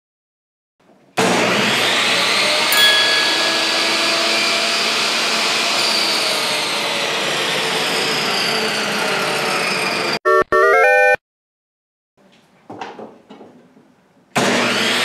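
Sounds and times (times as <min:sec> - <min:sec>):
table saw motor whine: 0:01.5 - 0:10.2, 0:14.4 - 0:15.0
saw cutting through wood: 0:14.4 - 0:15.0.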